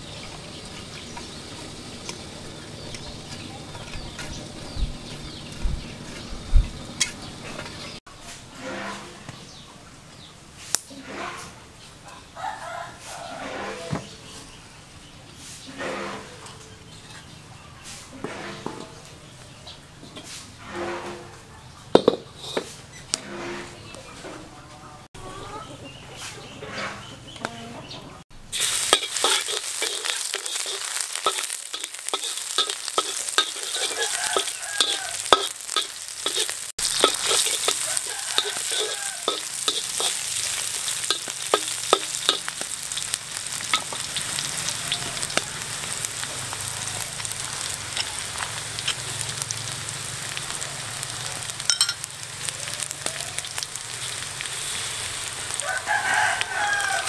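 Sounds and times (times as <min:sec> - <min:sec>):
shallots sizzling in hot oil: 0:00.0 - 0:08.0, 0:28.3 - 0:57.0.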